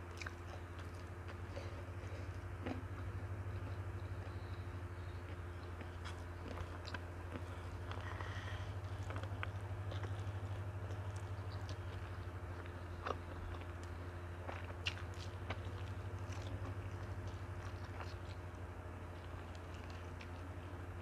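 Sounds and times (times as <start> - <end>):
person chewing: 0.0 - 21.0
steady low hum: 0.0 - 21.0.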